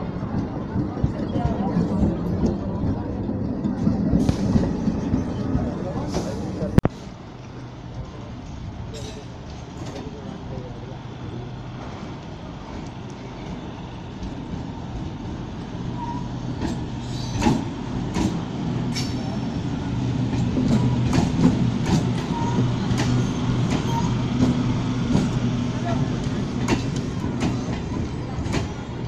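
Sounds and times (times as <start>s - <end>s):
train low hum: 0.0s - 29.0s
wheel clacks over rail joints: 20.3s - 28.8s.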